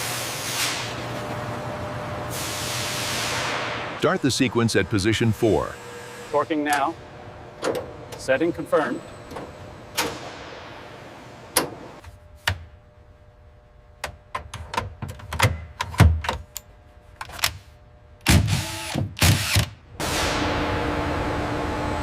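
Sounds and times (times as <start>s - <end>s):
steady hum with held tones: 3.9s - 19.0s, 19.7s - 22.0s.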